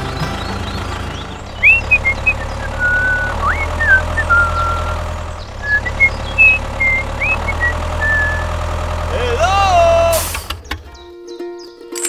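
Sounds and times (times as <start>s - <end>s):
engine-like hum: 0.0s - 11.1s
short high whistled chirps: 1.6s - 5.0s, 5.7s - 8.5s.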